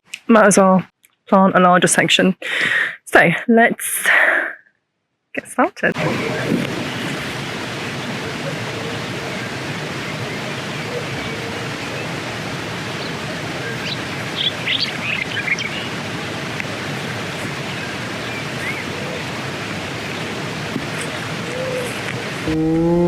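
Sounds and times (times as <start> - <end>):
outdoor rushing noise: 5.9 - 23.0.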